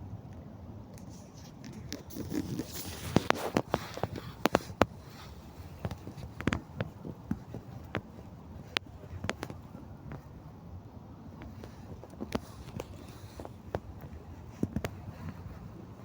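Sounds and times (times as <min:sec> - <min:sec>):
twigs snapping underfoot: 0:01.0 - 0:10.3, 0:11.4 - 0:16.0.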